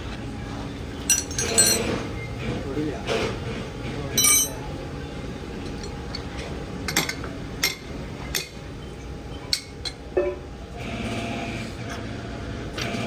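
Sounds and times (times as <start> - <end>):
low machinery hum: 0.0 - 13.0
metallic clinks and knocks: 1.1 - 2.0, 4.2 - 4.6.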